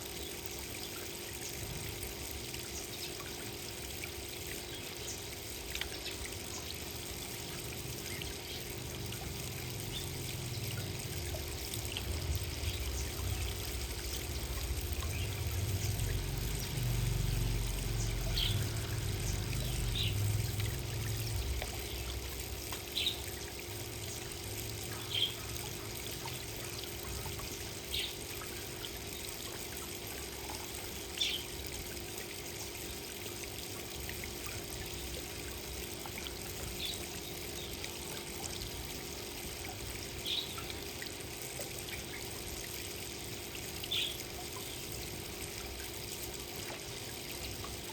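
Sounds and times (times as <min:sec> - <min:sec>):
water trickling: 0:00.0 - 0:47.9
low rumble: 0:12.0 - 0:21.8.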